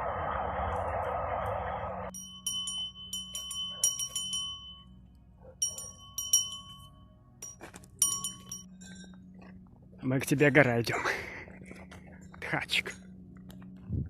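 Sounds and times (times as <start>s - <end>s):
small metal bell ringing: 2.1s - 5.0s, 5.6s - 9.2s.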